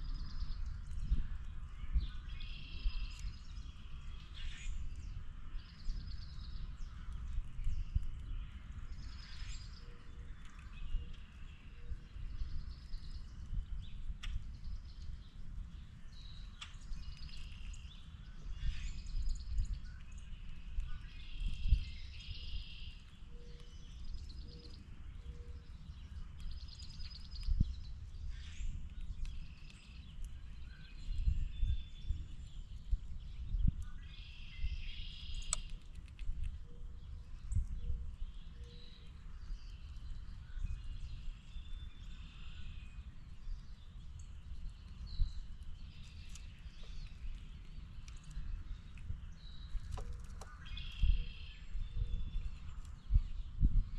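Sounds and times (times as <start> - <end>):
birds chirping and trilling: 0.0 - 53.9
steady low rumble: 0.0 - 53.9.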